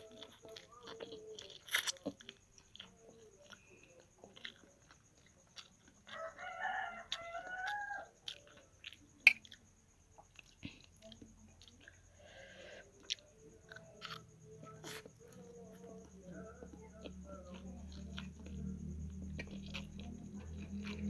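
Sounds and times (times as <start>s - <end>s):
person chewing noodles: 0.0s - 12.2s, 12.8s - 16.1s, 16.9s - 21.0s
rooster crowing: 6.0s - 8.3s.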